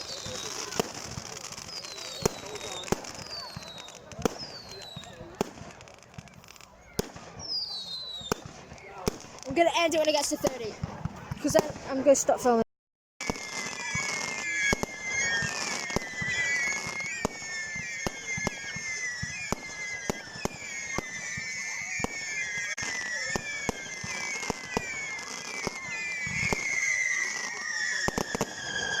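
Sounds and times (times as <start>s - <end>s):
shrill wavering whistle: 0.0s - 5.4s, 7.4s - 8.4s, 13.2s - 29.0s
fireworks bangs and crackles: 0.0s - 12.6s, 13.2s - 29.0s.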